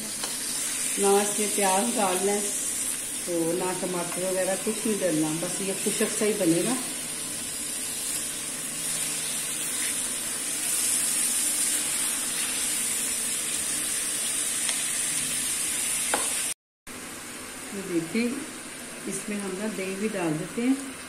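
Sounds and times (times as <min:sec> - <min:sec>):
chicken sizzling in pan: 0:00.0 - 0:16.6.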